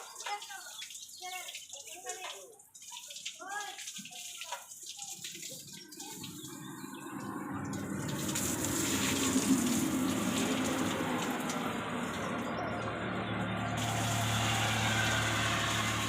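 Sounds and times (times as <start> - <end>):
water jet spraying: 7.7 - 16.0.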